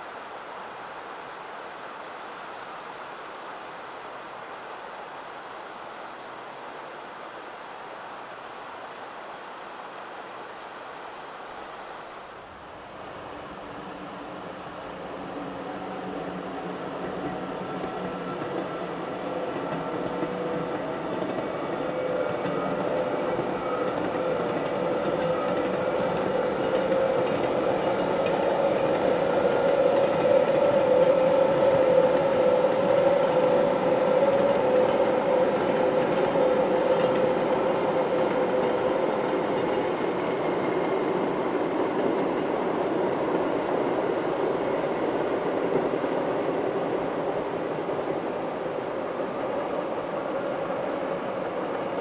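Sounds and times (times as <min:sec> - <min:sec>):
train rolling rumble: 0:12.6 - 0:52.0.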